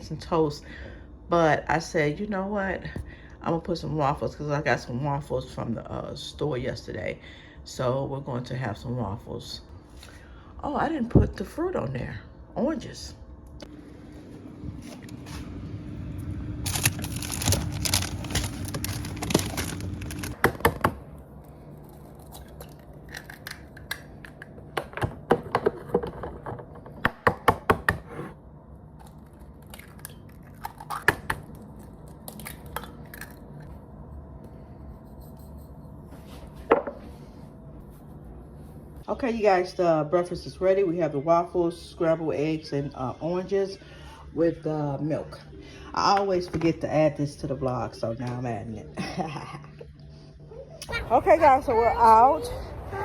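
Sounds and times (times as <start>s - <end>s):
low hum with hiss: 0.0s - 27.2s, 28.1s - 53.0s.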